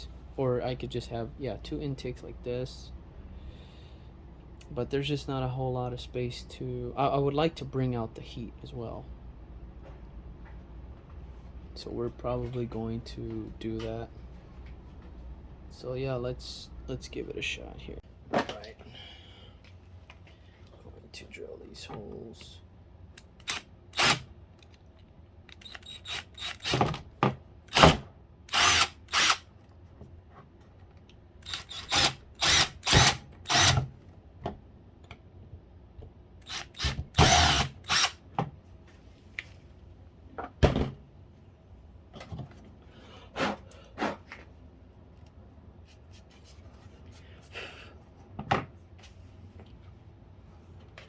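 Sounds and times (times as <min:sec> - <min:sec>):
power drill drilling plastic: 0:23.4 - 0:24.2, 0:25.6 - 0:26.9, 0:27.7 - 0:29.4, 0:31.4 - 0:33.8, 0:36.5 - 0:38.2.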